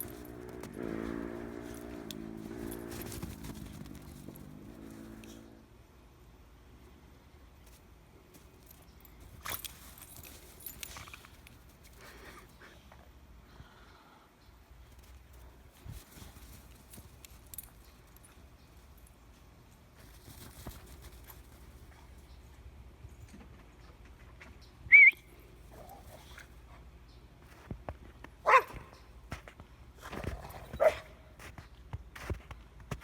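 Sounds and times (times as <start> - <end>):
dog barking: 28.4 - 28.9, 30.8 - 31.2.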